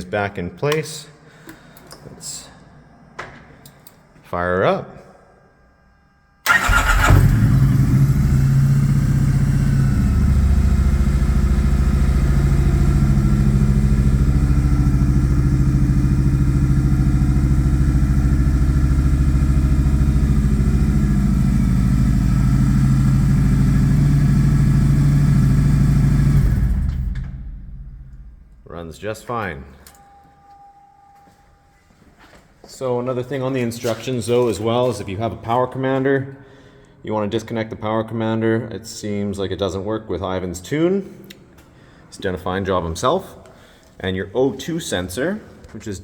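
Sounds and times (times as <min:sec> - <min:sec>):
electric starter cranking: 0:06.4 - 0:08.9
motorcycle engine idling: 0:06.5 - 0:28.6.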